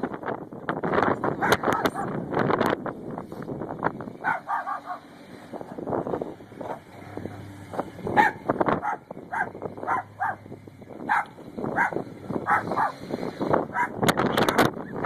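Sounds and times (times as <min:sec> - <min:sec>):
dog barking: 0:01.4 - 0:02.1, 0:04.2 - 0:05.1, 0:08.1 - 0:10.4, 0:11.1 - 0:13.0, 0:13.7 - 0:14.6.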